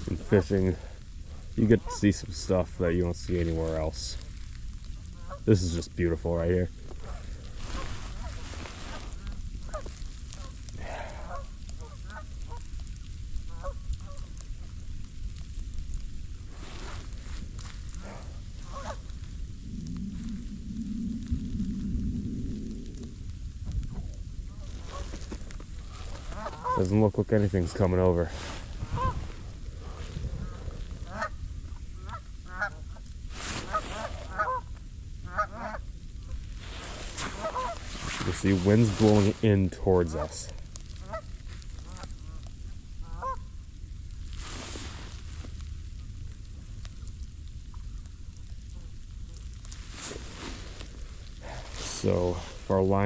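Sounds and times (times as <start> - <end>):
wind rumble on microphone: 0.0 - 53.0
geese honking: 11.2 - 12.6, 13.5 - 14.3, 18.0 - 19.2, 25.9 - 26.9, 29.8 - 31.4, 33.6 - 34.7, 37.2 - 37.8, 43.0 - 43.4
goose honking: 37.4 - 37.8, 43.0 - 43.4.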